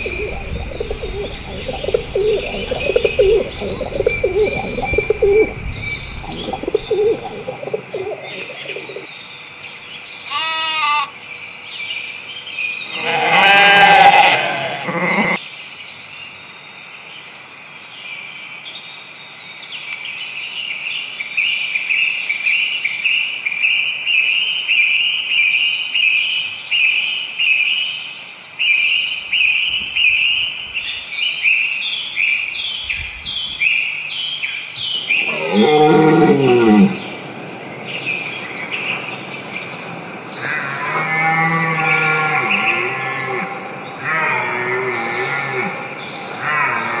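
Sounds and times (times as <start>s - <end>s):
low animal call: 0.0s - 9.1s, 12.9s - 15.4s, 35.0s - 47.0s.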